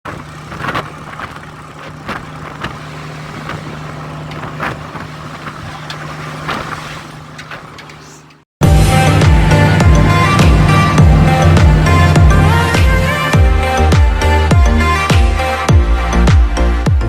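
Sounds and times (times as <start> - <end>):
engine humming: 0.1 - 15.6.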